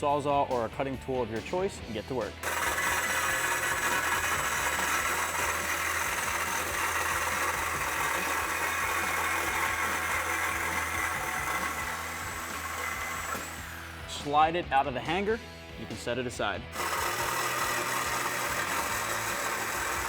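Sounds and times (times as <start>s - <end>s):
reciprocating saw cutting pipe: 2.4s - 14.4s, 16.7s - 20.0s.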